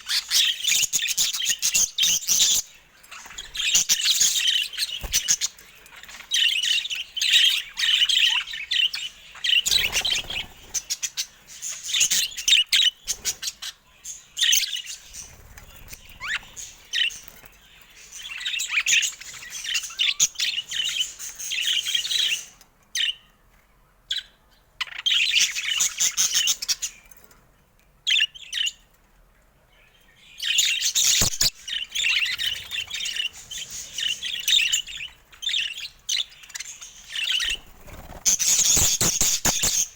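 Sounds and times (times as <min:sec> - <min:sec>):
budgerigars chattering: 0:00.0 - 0:13.8, 0:30.4 - 0:39.9.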